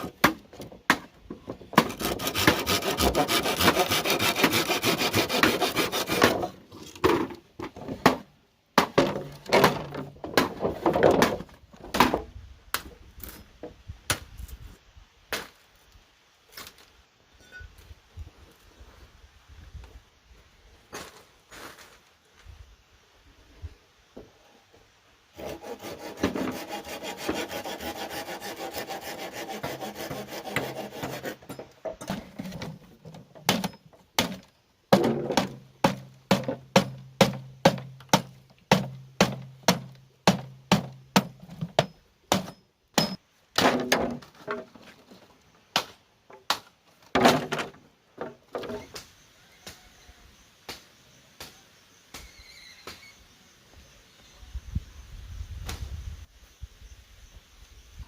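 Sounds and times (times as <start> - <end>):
handsaw rasping through bamboo: 1.8 - 6.6, 25.4 - 31.6.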